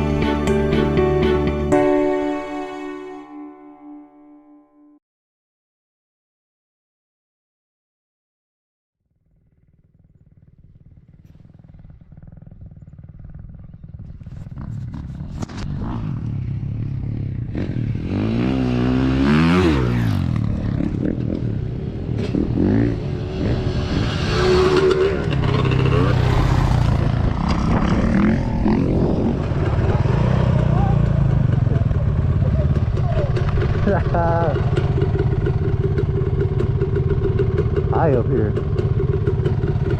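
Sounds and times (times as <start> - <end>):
dirt bike engine revving: 10.2 - 39.9.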